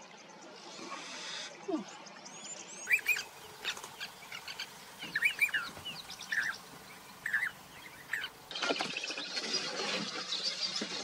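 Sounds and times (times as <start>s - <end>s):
birds chirping chorus: 0.0s - 11.0s
bird whistled notes: 2.8s - 3.3s, 5.1s - 5.7s.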